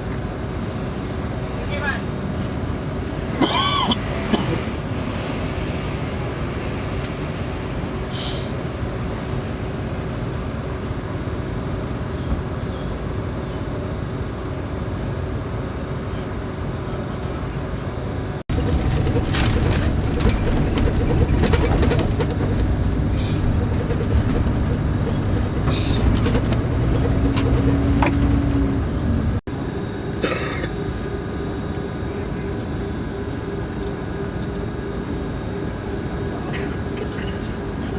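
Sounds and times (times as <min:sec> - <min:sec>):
coach engine and road rumble: 0:00.0 - 0:37.9
rattles and clicks: 0:18.5 - 0:29.4.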